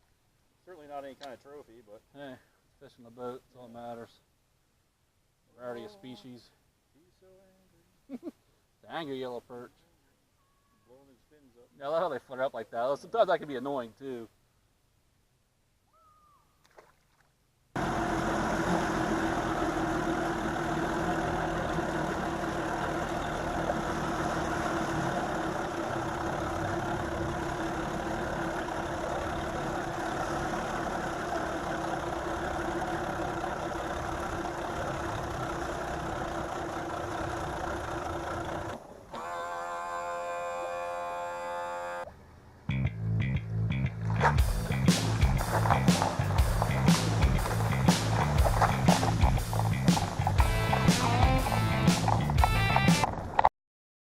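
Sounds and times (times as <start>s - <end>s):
outboard motor humming: 17.8s - 42.2s, 44.0s - 53.4s
pitched sound: 44.4s - 53.1s.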